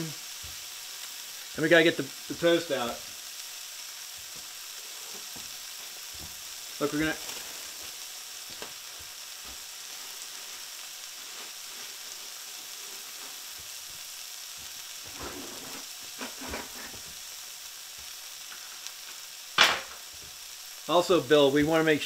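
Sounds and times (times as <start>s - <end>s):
eggs and ham sizzling in a pan: 0.0s - 22.0s.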